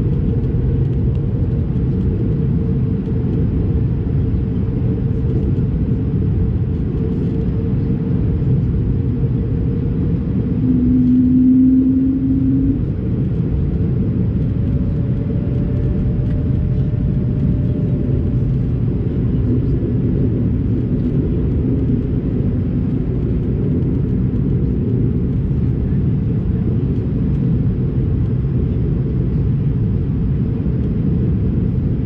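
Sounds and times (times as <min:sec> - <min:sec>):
airliner cabin rumble: 0:00.0 - 0:32.0
low hum: 0:00.0 - 0:32.0.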